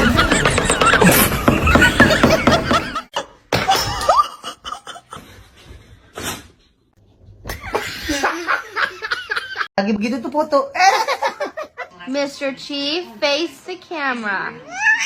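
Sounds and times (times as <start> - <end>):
people laughing: 0.0 - 3.2, 7.5 - 9.7.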